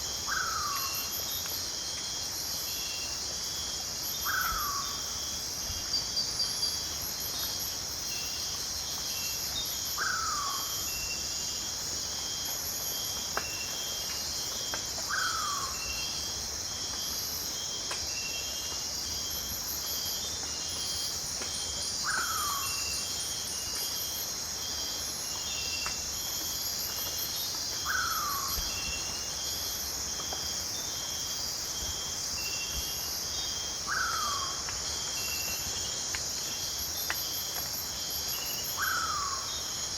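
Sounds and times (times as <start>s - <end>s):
crickets chirping: 0.0s - 39.9s
high insect drone: 0.0s - 39.9s.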